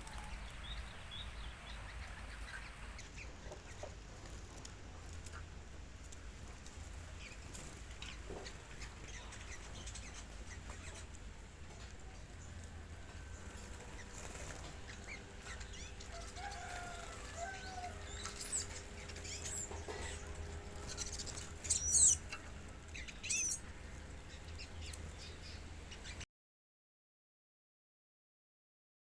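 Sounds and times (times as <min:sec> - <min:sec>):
high-pitched bird calls: 0:00.0 - 0:04.4, 0:07.0 - 0:26.2
bird chirps and whistles: 0:20.9 - 0:22.3, 0:23.0 - 0:23.6.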